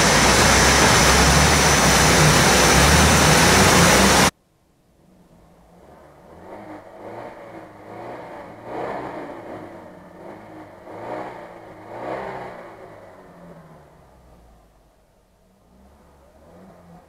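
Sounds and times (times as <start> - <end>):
low engine drone: 0.0 - 4.3
off-road vehicle engine revving: 0.0 - 4.3, 5.4 - 14.6, 15.6 - 17.0.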